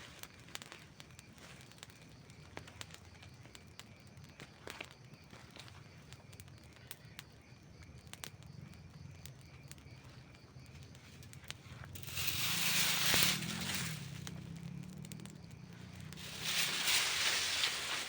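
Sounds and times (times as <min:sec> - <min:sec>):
campfire crackling and popping: 0:00.0 - 0:18.0
low steady rumble: 0:11.7 - 0:18.0
rushing hiss: 0:12.0 - 0:14.3, 0:16.2 - 0:18.0.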